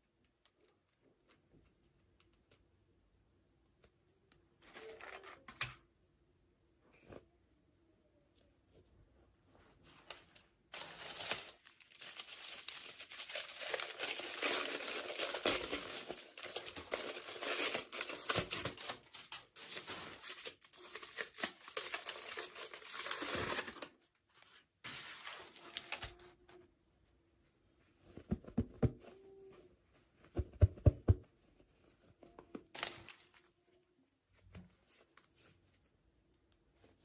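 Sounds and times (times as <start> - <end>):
packaging crinkling and tearing: 10.2 - 26.2.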